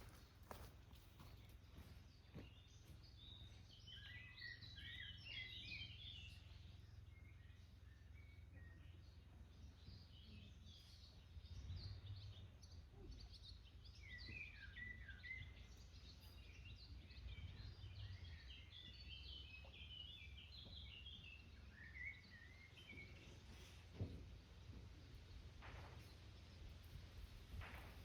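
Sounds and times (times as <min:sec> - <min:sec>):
faint birdsong: 0:00.0 - 0:28.0
low steady rumble: 0:02.7 - 0:14.1.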